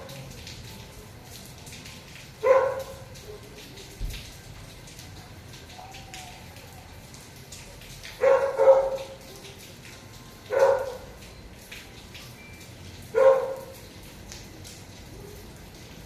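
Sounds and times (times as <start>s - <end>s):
dog barking: 2.4s - 3.5s, 8.2s - 9.2s, 10.5s - 11.0s, 13.2s - 13.8s.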